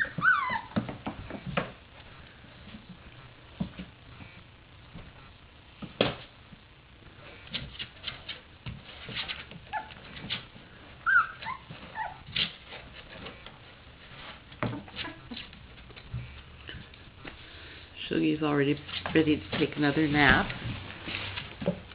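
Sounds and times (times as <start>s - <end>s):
puppies whimpering squeaks: 0.0s - 0.8s, 9.7s - 10.0s, 11.0s - 12.4s
puppies moving about: 7.4s - 17.0s.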